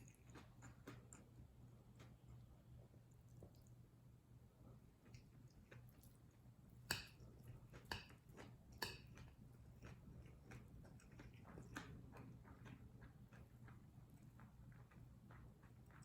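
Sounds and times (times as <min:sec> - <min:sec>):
wet chewing: 0:00.0 - 0:02.4, 0:05.0 - 0:16.0.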